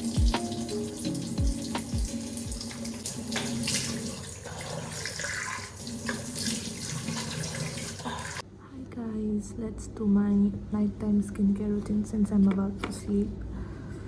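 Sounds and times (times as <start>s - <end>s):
water running from tap into sink: 0.0s - 8.4s.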